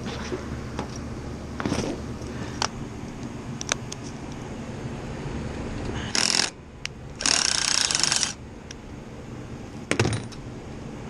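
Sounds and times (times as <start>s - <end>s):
power driver whirring: 6.1s - 8.4s.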